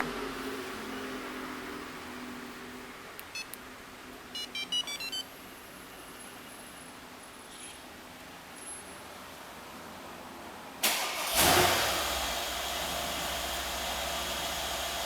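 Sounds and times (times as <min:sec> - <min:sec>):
remote button beeps: 0:03.2 - 0:03.6, 0:04.4 - 0:05.2
engine cranking: 0:10.8 - 0:12.7.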